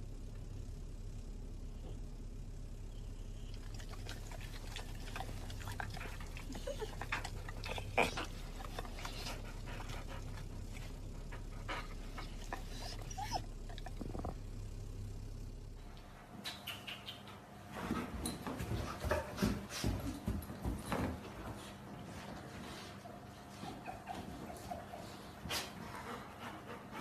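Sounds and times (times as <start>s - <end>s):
steady low hum: 0.0s - 27.0s
dog squeaks and clicks: 12.6s - 13.4s, 16.4s - 17.4s.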